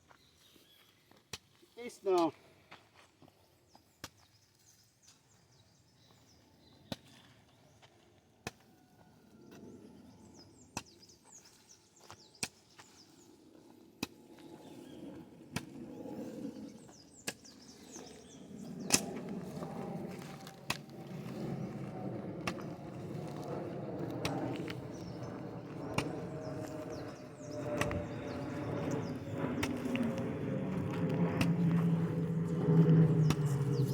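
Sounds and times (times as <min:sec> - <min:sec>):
hoe chopping into soil: 0:18.8 - 0:19.3.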